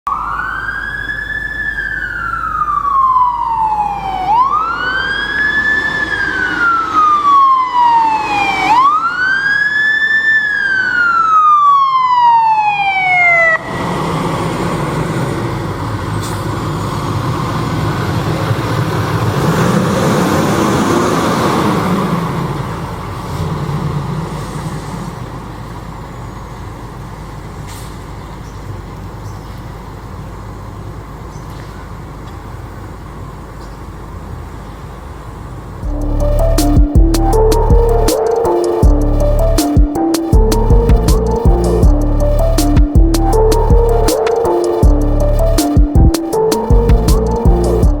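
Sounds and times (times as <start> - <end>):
fire engine siren wailing: 0.1 - 27.4, 35.9 - 48.0
diesel engine rumbling past: 13.4 - 31.3, 35.6 - 48.0.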